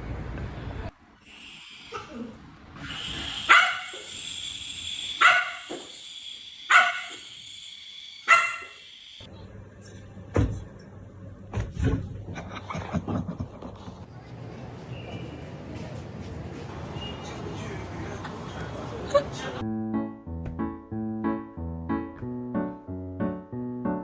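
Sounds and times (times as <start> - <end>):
dog barking: 3.4 - 4.1, 5.2 - 5.8, 6.7 - 7.3, 8.2 - 8.8.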